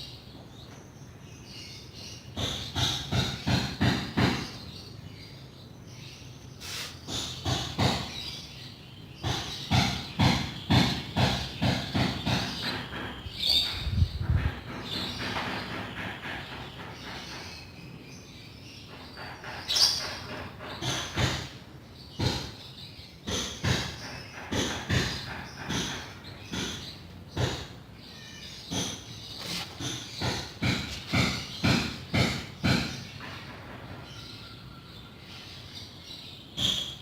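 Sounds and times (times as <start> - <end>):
bird chirping: 0.0 - 37.0
knocks and scrapes: 28.7 - 34.0.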